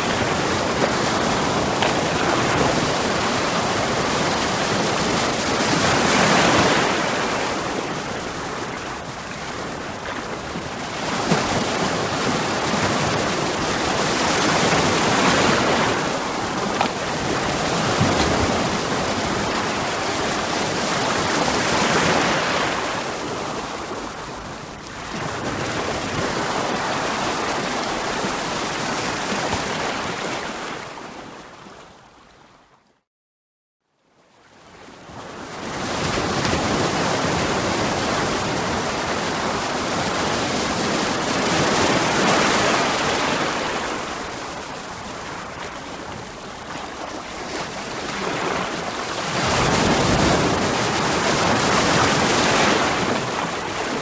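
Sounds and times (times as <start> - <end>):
sea waves breaking on rocks: 0.0 - 23.8, 25.0 - 31.2, 45.1 - 54.0.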